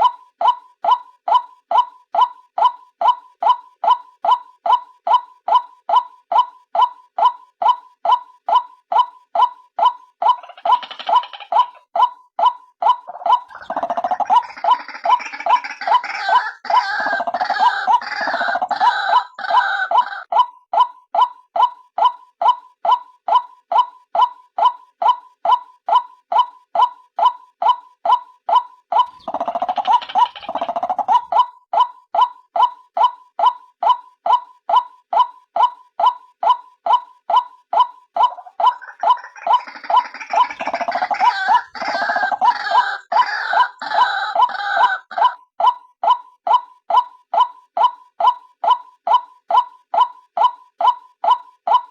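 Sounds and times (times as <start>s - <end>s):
waterhen repeated call notes: 0.0s - 51.9s
bird chattering: 10.2s - 11.9s, 13.0s - 20.2s, 28.9s - 31.5s, 37.8s - 45.3s.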